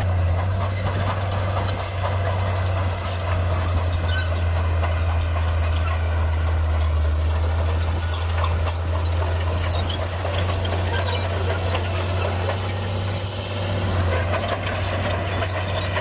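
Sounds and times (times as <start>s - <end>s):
bulldozer diesel engine running: 0.0s - 16.0s
clicks and clanks: 7.7s - 13.1s.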